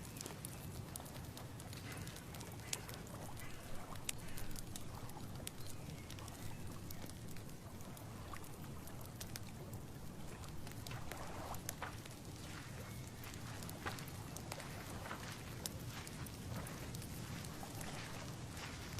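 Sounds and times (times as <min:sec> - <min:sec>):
light ticks and rustles: 0:00.0 - 0:18.9.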